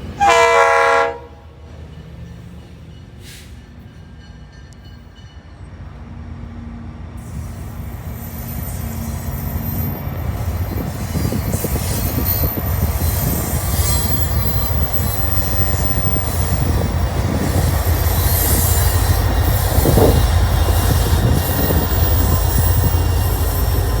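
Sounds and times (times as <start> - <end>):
freight train rumbling past: 0.0 - 24.0
train hissing and screeching: 3.1 - 3.9, 7.2 - 24.0.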